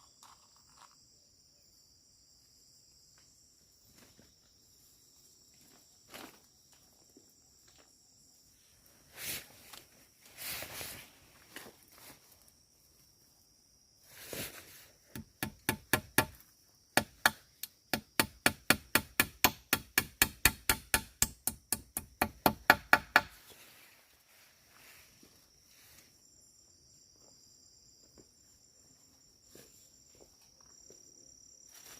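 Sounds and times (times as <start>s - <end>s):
tool knocking on wood: 15.2s - 16.4s, 17.0s - 23.4s.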